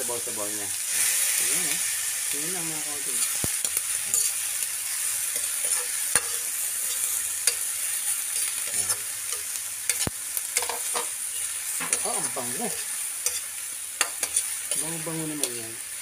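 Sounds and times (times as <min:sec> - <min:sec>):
food sizzling in hot oil: 0:00.0 - 0:16.0
metal spatula scraping wok: 0:03.1 - 0:15.7.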